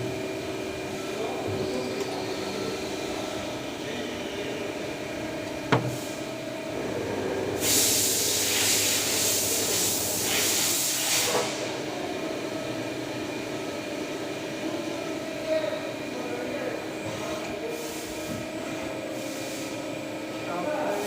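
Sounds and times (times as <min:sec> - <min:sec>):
cnc machine humming: 0:00.0 - 0:10.9, 0:11.5 - 0:21.0
loud hiss: 0:07.6 - 0:11.7.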